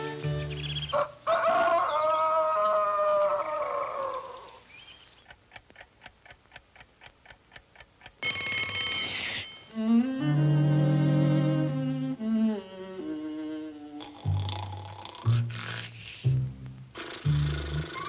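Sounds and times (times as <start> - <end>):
cartoon clock ticking: 5.2 - 10.0, 14.0 - 18.0
alarm clock bell ringing: 8.2 - 9.8
held orchestral chord: 9.7 - 12.3.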